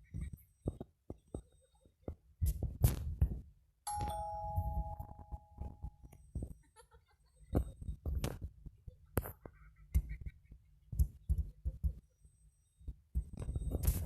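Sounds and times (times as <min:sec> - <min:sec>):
doorbell ding-dong chime: 0:03.9 - 0:06.0.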